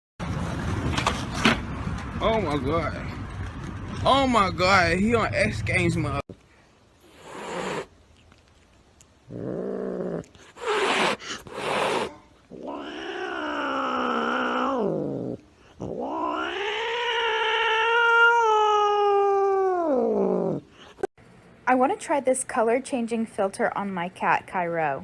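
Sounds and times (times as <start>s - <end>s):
cat yowling: 10.6s - 20.6s.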